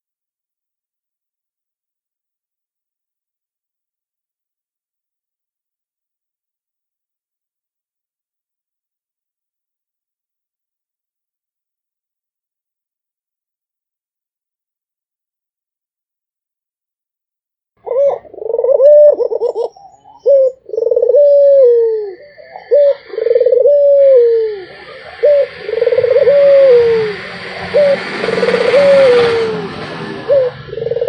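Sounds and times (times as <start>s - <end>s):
dove cooing: 17.8s - 31.0s
background hiss: 20.8s - 30.8s.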